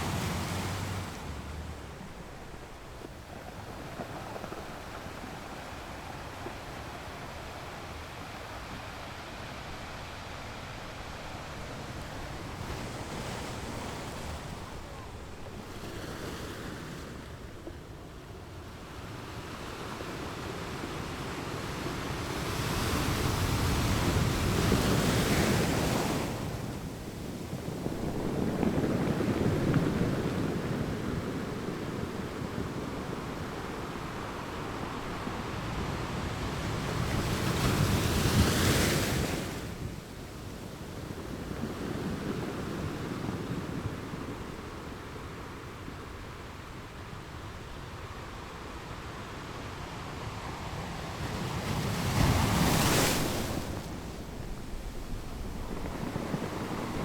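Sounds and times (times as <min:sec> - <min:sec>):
sea wash: 0:00.0 - 0:57.0
wind on microphone: 0:22.3 - 0:48.6, 0:50.3 - 0:57.0.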